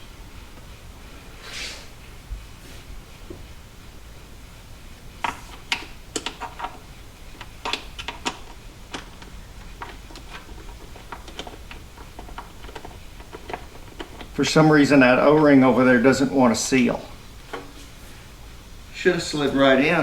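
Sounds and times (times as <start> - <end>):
clicks and knocks of hard parts: 5.2 - 14.5, 17.4 - 17.8.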